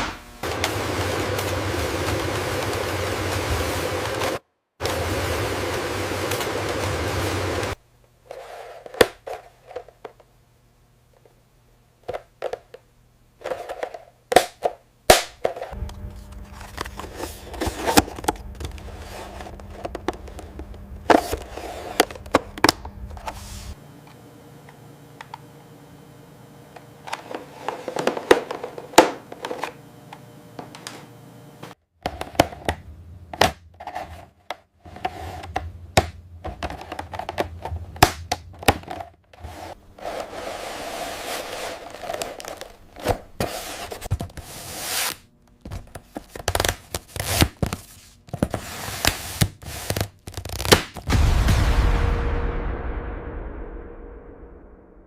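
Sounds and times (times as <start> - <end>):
low machine hum: 14.9 - 48.6.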